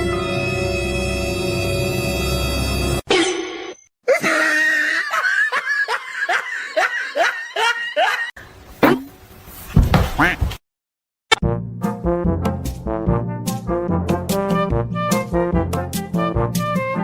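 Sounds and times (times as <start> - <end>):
person laughing: 4.1 - 8.3.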